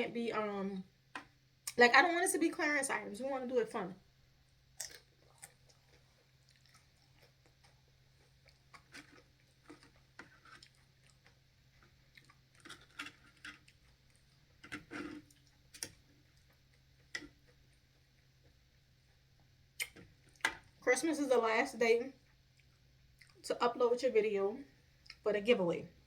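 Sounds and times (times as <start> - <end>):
faint low hum: 0.0 - 26.0
person chewing food: 4.7 - 20.8, 22.2 - 23.4
soft mouth clicks and smacks: 4.8 - 14.2, 19.4 - 20.7, 22.2 - 23.4.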